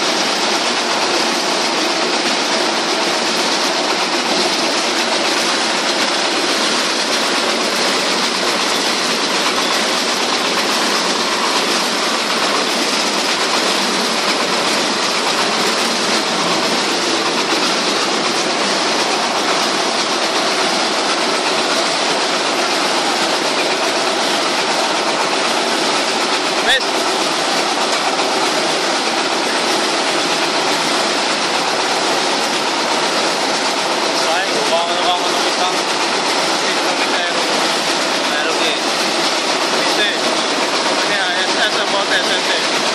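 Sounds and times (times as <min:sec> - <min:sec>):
wood chipper running: 0:00.0 - 0:42.9.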